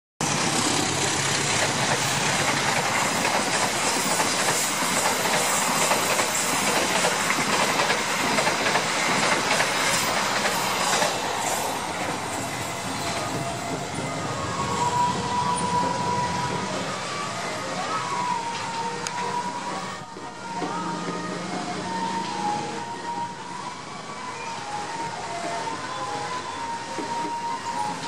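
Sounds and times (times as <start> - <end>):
wheels clacking over rail joints: 0.2 - 17.2
train passing at speed: 0.2 - 28.0.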